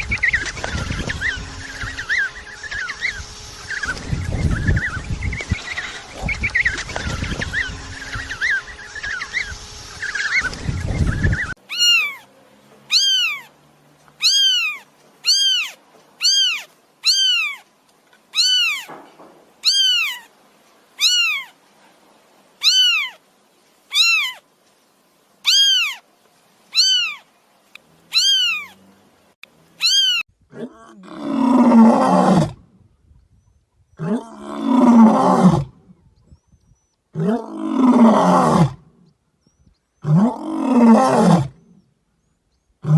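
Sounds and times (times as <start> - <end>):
kitten mewing: 11.7 - 12.3, 12.9 - 13.5, 14.2 - 17.6, 18.4 - 18.9, 19.6 - 20.3, 21.0 - 21.5, 22.6 - 23.2, 23.9 - 24.4, 25.5 - 26.0, 26.8 - 27.2, 28.1 - 28.8, 29.8 - 30.2
big cat roaring: 30.5 - 32.6, 34.0 - 35.8, 37.1 - 38.9, 40.0 - 41.7.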